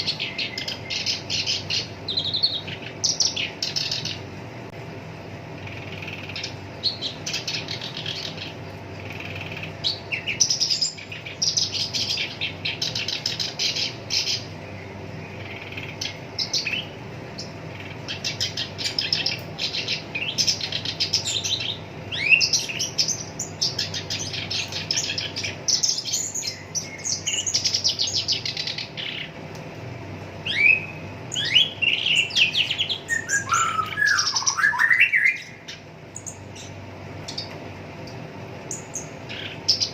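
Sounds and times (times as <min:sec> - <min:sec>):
warbler singing rattling trills: 0:00.0 - 0:04.5, 0:05.5 - 0:29.4, 0:30.3 - 0:39.9
whistled bird notes: 0:15.2 - 0:29.3, 0:30.4 - 0:36.7.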